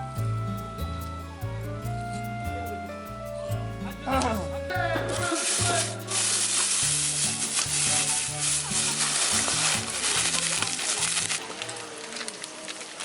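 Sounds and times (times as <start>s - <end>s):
food sizzling: 4.4s - 13.0s.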